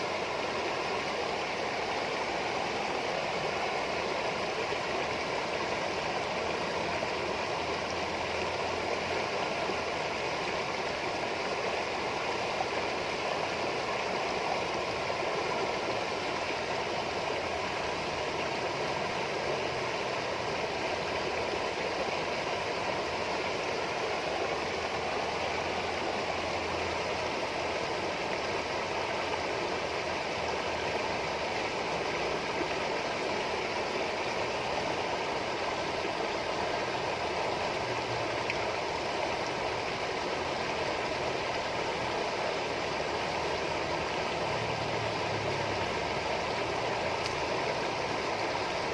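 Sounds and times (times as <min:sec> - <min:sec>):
water trickling and babbling: 0:00.0 - 0:48.9.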